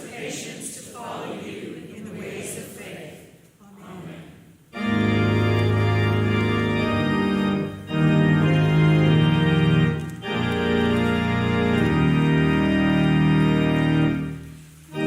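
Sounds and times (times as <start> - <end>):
organ playing chords: 4.7 - 15.0.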